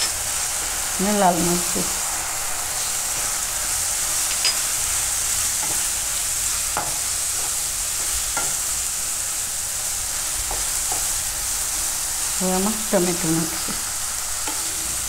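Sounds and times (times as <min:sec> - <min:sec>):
onions sizzling in hot oil: 0:00.0 - 0:15.0
spatula scraping and knocking pan: 0:05.6 - 0:06.0, 0:06.8 - 0:08.7, 0:10.4 - 0:11.1.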